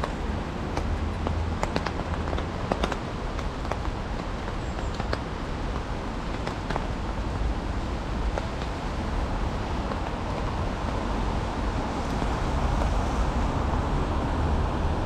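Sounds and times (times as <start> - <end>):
raindrops ticking: 0.0 - 13.2
rain hiss: 6.9 - 15.0.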